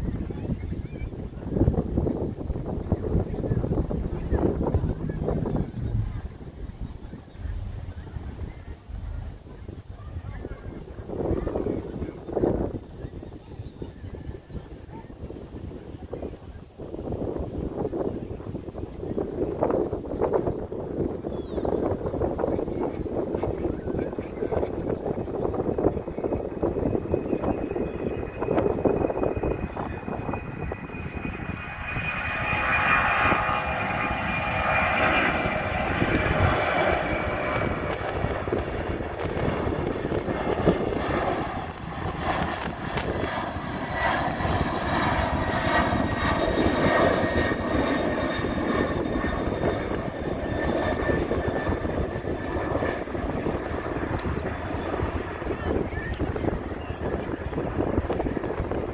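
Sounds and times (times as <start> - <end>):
jet engines at takeoff power: 0.0 - 58.9.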